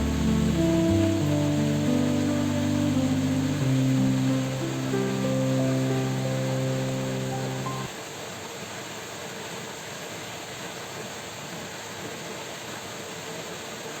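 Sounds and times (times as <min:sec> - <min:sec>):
heavy rain: 0:00.0 - 0:07.9
soft background music: 0:00.0 - 0:07.9.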